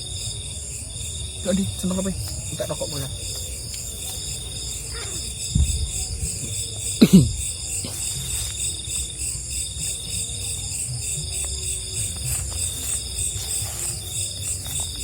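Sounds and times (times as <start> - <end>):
crickets trilling: 0.0 - 15.0
low thump: 5.5 - 6.1.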